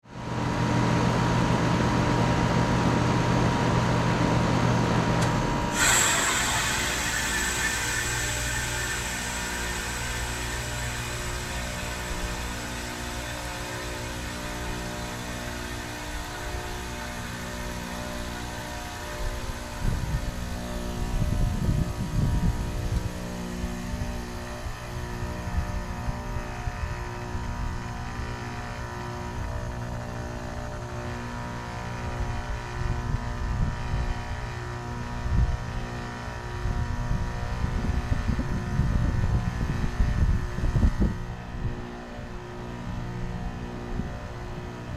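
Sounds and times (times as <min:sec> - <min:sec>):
heat pump humming: 0:01.1 - 0:24.2
valve click: 0:05.7 - 0:13.0
refrigerant hissing: 0:05.7 - 0:16.1
low rumble: 0:05.8 - 0:17.0.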